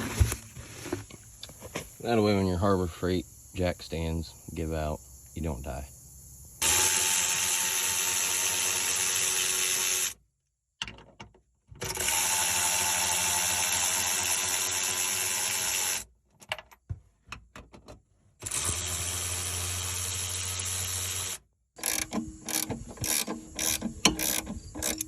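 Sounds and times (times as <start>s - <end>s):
power tool running: 6.6s - 10.2s, 11.8s - 16.0s, 18.4s - 25.0s.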